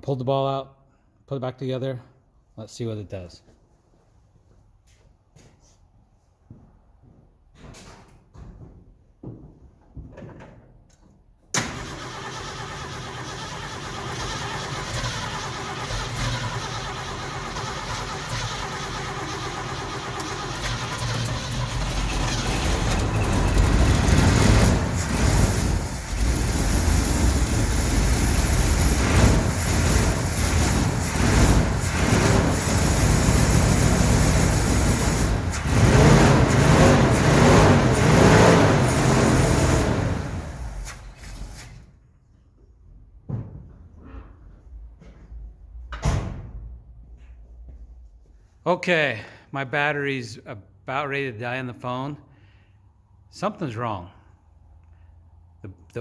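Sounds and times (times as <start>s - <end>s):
truck engine cranking and running: 11.5s - 41.9s.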